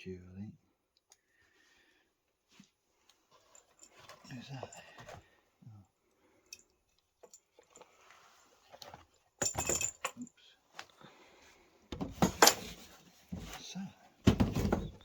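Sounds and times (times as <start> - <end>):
objects rattling clatter: 8.6 - 10.3, 12.0 - 13.6, 14.2 - 15.0.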